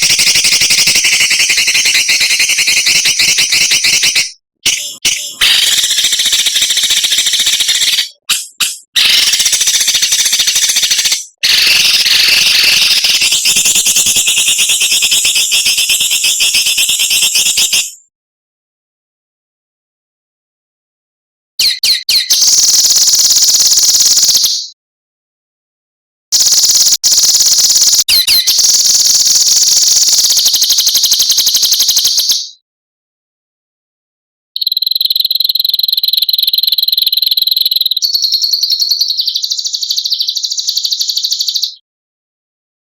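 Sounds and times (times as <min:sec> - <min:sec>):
songbird rattling call: 0:00.0 - 0:16.4, 0:21.6 - 0:24.7, 0:26.4 - 0:32.6, 0:34.6 - 0:41.8
bird whistle notes: 0:00.0 - 0:17.8, 0:21.6 - 0:24.8, 0:28.0 - 0:29.6.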